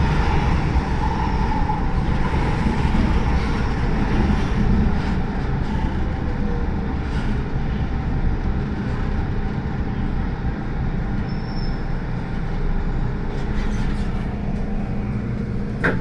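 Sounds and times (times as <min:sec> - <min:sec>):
train rumble on track: 0:00.0 - 0:16.0.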